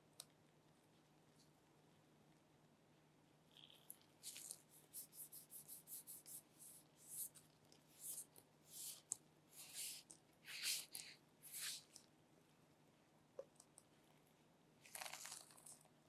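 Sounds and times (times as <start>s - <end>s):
hands rubbing and scratching: 4.2s - 12.0s.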